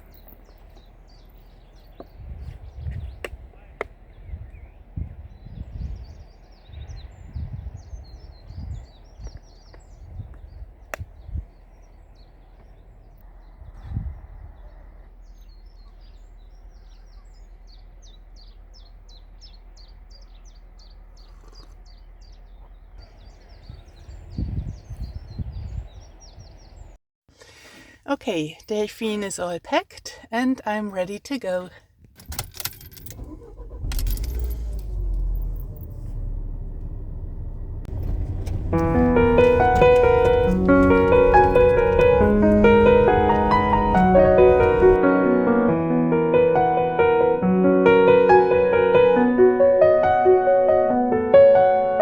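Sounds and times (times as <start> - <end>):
keys jangling: 0.0 - 2.0, 32.1 - 36.1, 37.9 - 45.0
low outdoor rumble: 0.0 - 27.0, 32.3 - 45.0
songbird chirping: 0.0 - 27.0, 32.6 - 45.0.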